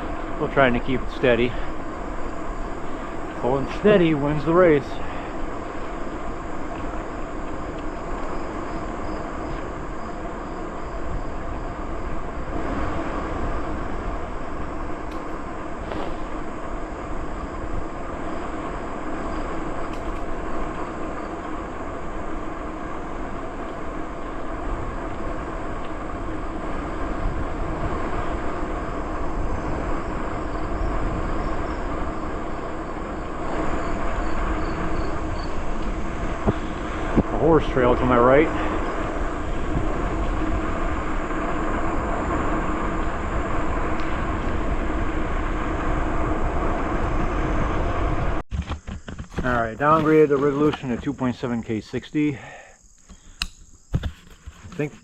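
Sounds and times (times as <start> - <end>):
wind noise on microphone: 0.0 - 51.2
bicycle tyres rumbling on trail: 0.0 - 55.0.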